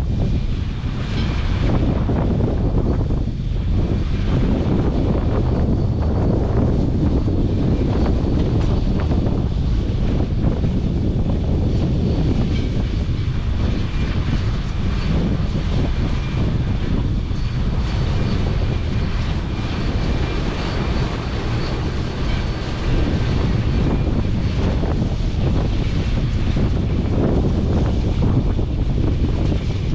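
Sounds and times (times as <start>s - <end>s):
combine harvester rumbling: 0.0s - 29.9s
faint high whine: 11.7s - 29.4s.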